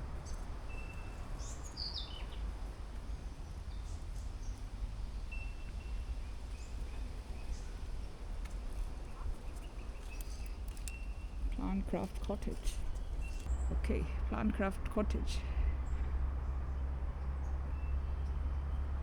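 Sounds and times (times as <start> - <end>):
steady low rumble: 10.5 - 19.0.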